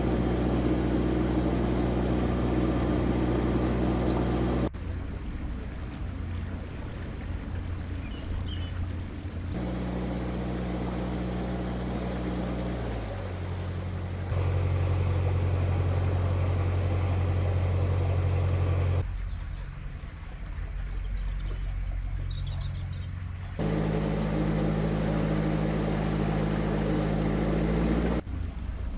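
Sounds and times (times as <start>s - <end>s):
boat diesel engine running: 0.0s - 19.7s, 20.6s - 28.3s.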